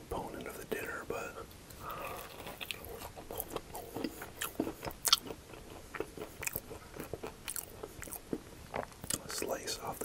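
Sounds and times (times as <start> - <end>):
crispy food crunching while chewed: 1.8 - 9.5.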